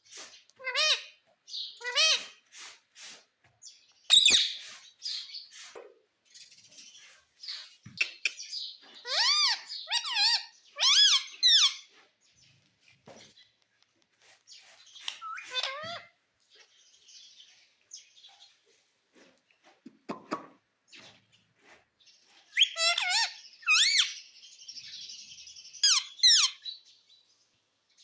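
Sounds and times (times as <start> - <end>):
parrot squawking: 0.6 - 1.1, 1.8 - 2.4, 9.0 - 11.9, 15.1 - 16.1, 22.6 - 24.2, 25.8 - 26.6.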